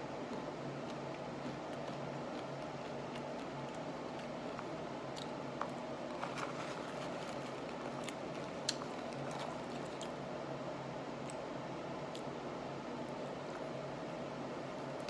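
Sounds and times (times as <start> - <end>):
crunching nuts chewing: 0.2 - 10.2.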